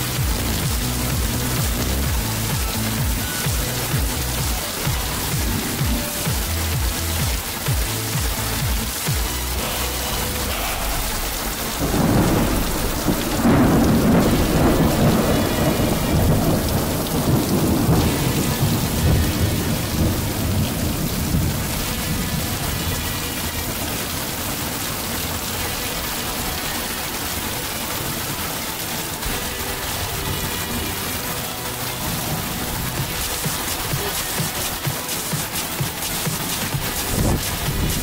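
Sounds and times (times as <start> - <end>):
steady rain: 0.0 - 38.0
thunder rolling: 10.3 - 22.8.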